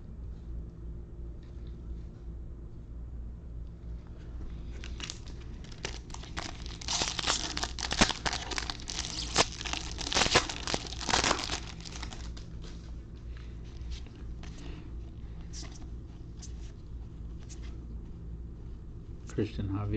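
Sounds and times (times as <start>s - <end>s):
foil wrapper crinkling and tearing: 4.7s - 12.9s.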